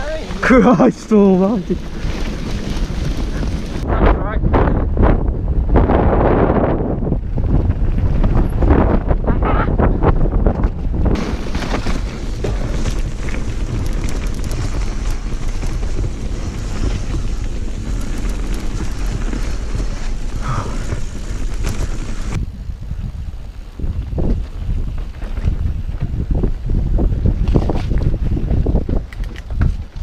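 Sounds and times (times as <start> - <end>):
bike tyre noise: 0.0 - 30.0
wind buffeting microphone: 0.0 - 30.0
bike clicks and knocks: 28.7 - 30.0.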